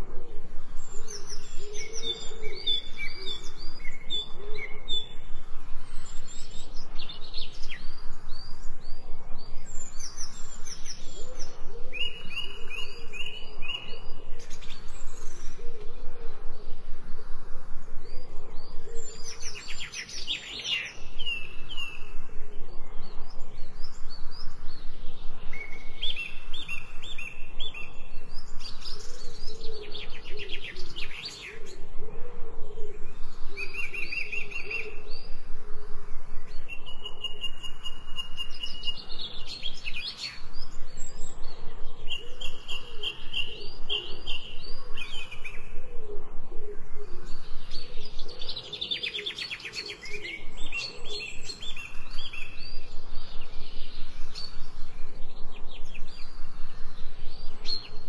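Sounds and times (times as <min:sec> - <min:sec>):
songbirds whistling: 0:00.7 - 0:16.9, 0:17.8 - 0:31.9, 0:36.2 - 0:46.2, 0:47.0 - 0:58.0.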